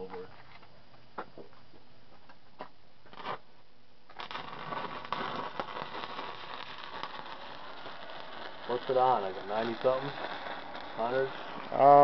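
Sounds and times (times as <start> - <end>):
welding arc crackling: 3.1 - 3.5, 4.1 - 12.0.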